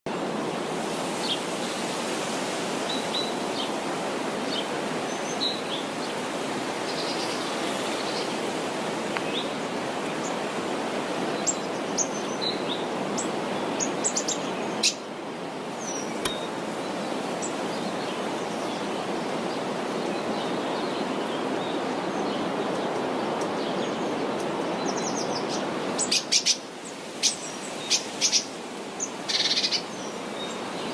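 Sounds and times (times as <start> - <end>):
birds chirping and calling: 27.2 - 30.6.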